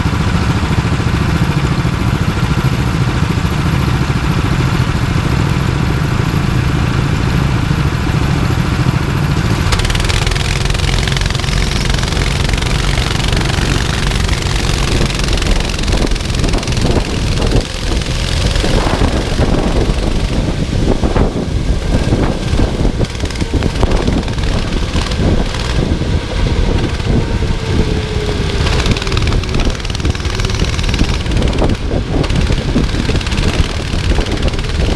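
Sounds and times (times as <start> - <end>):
go-kart engine revving: 0.0 - 34.9
wind hiss: 2.7 - 34.9
wet track noise: 8.2 - 34.9.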